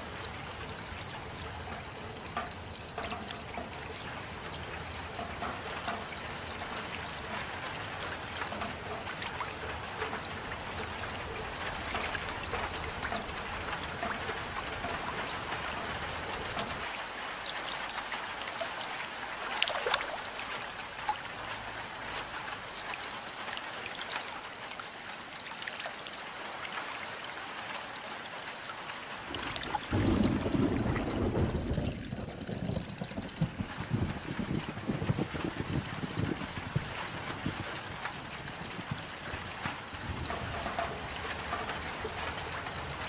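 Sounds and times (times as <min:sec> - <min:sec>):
steady rain: 0:00.0 - 0:43.0
water trickling and dripping: 0:00.0 - 0:43.0
drops ticking: 0:01.0 - 0:16.8
water splash: 0:29.2 - 0:34.1.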